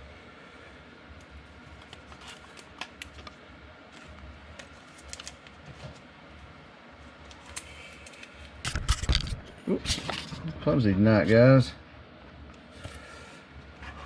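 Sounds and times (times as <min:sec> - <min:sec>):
low steady hum: 0:00.0 - 0:14.0
trading cards being handled: 0:01.7 - 0:06.1, 0:07.2 - 0:09.4.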